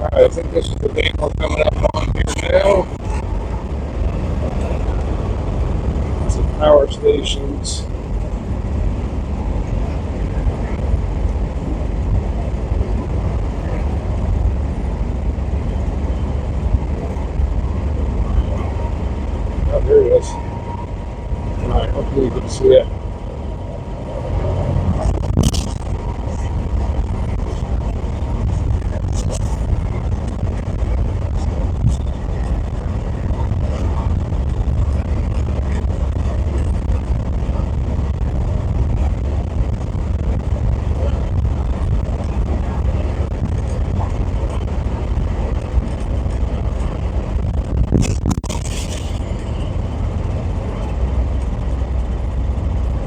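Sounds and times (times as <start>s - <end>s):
road and engine noise in cabin: 0.0s - 53.0s.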